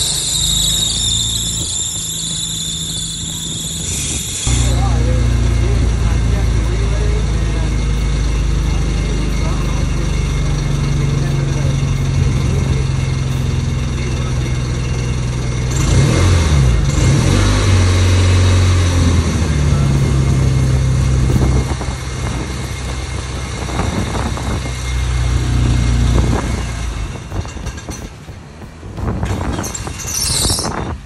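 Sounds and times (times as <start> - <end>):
car engine humming: 0.0 - 31.0.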